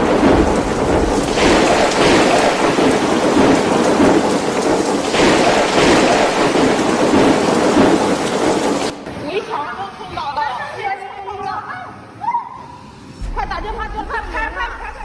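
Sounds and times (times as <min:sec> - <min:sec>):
heavy rain: 0:00.0 - 0:09.1.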